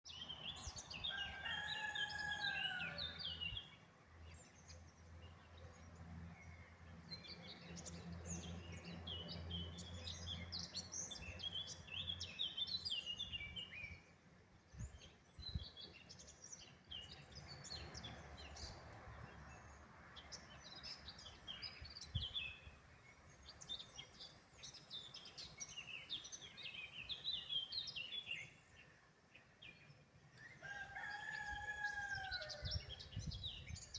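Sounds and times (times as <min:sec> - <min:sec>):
songbirds chirping and warbling: 0:00.1 - 0:33.9
rooster crowing: 0:01.0 - 0:03.2, 0:30.6 - 0:32.8.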